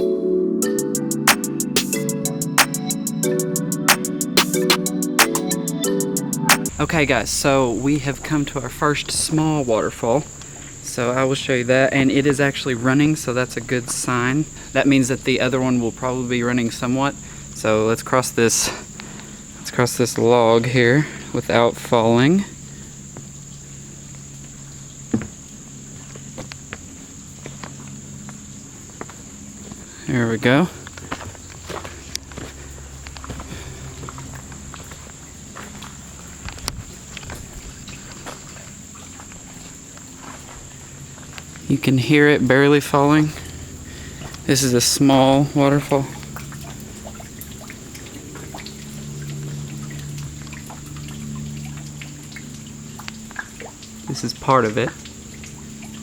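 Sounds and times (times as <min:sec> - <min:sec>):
insects droning: 0:00.0 - 0:56.0
small waterfall trickling: 0:08.0 - 0:56.0
water dripping and splashing: 0:30.8 - 0:41.7, 0:43.4 - 0:56.0.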